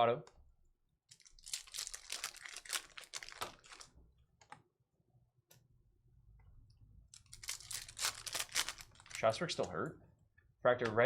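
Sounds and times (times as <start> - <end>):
trading cards clicking and snapping: 7.2 - 9.2.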